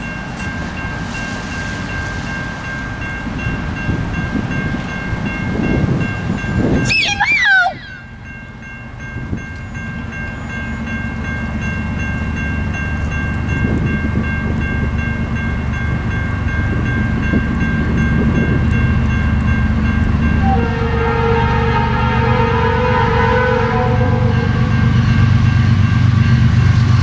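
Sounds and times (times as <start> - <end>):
diesel train rumble: 0.0 - 27.0
train horn: 20.4 - 25.3.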